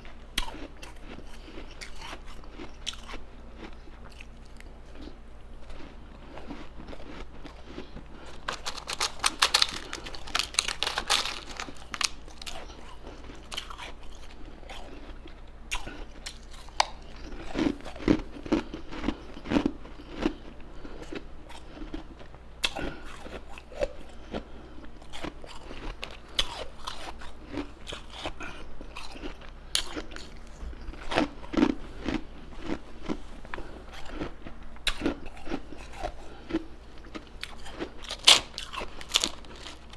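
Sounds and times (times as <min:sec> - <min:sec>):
crunching and chewing ice: 0:00.0 - 0:39.9.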